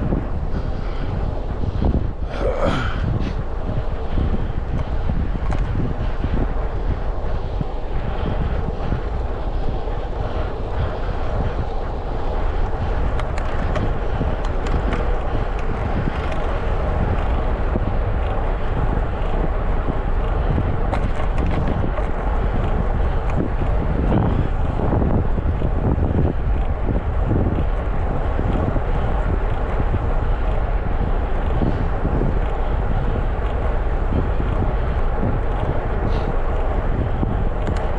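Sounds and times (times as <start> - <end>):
road and tyre noise: 0.0 - 37.9
wind rushing over microphone: 0.0 - 37.9.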